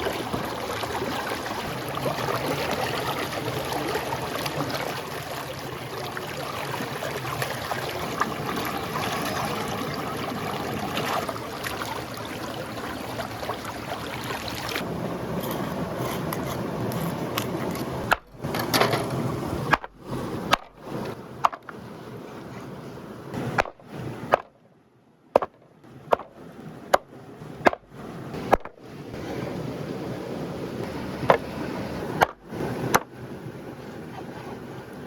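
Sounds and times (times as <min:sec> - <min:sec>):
steady rushing noise: 0:00.0 - 0:21.7
chopping on wood: 0:25.4 - 0:26.3.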